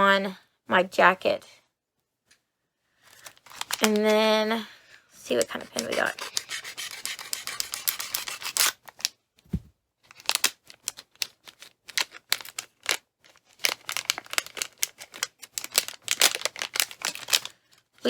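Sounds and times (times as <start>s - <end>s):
packaging crinkling and clicking: 3.2s - 4.1s, 10.1s - 17.5s
low thud: 9.5s - 9.7s.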